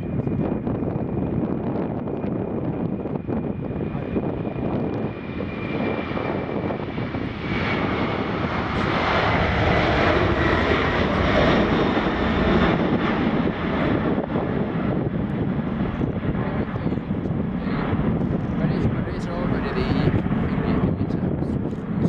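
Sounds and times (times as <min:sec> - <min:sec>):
jet airliner taking off: 0:00.0 - 0:22.0.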